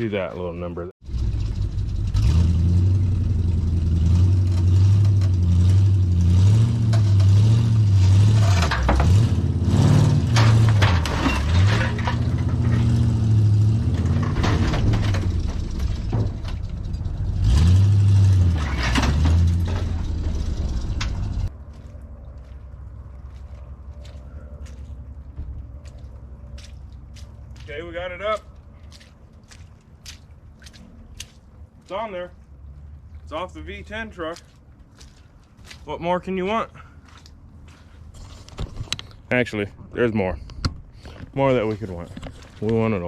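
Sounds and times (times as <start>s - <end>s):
truck engine revving: 1.0s - 21.6s
sharp metal knocks and clanks: 8.3s - 21.5s.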